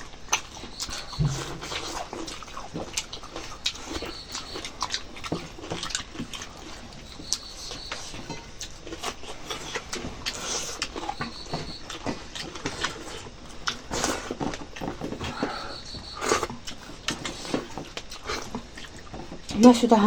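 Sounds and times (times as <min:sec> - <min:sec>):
chewing and crunching bones: 0:00.0 - 0:20.0
wet mouth clicks and smacks: 0:08.6 - 0:14.2.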